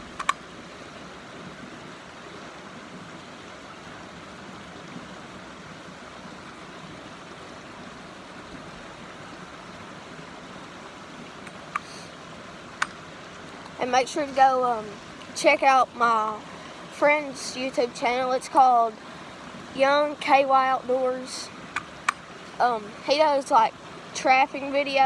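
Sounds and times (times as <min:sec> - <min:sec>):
creek water rushing: 0:00.0 - 0:25.0.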